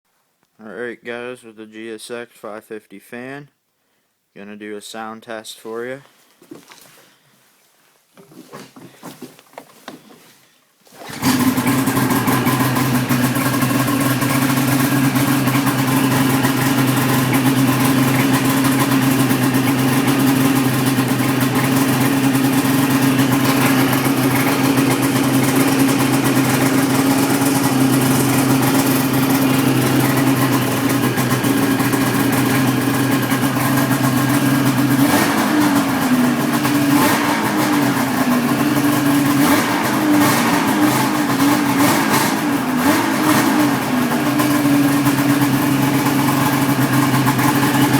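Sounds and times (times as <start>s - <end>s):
faint handling noises: 6.0s - 11.1s
snowmobile engine idling: 11.0s - 47.9s.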